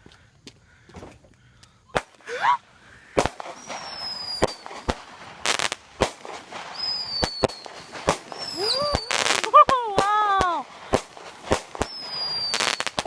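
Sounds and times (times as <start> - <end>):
firework crackling: 1.9 - 13.0
firework bangs: 3.1 - 13.0
whistling firework shell: 3.2 - 9.7, 10.9 - 13.0.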